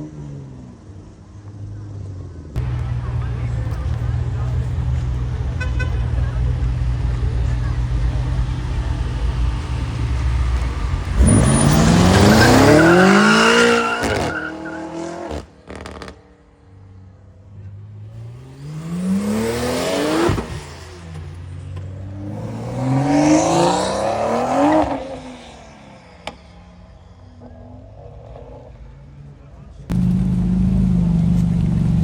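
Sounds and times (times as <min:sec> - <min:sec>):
car engine idling: 0:02.4 - 0:13.3, 0:25.9 - 0:32.0
car engine revving: 0:02.6 - 0:16.5, 0:17.3 - 0:32.0.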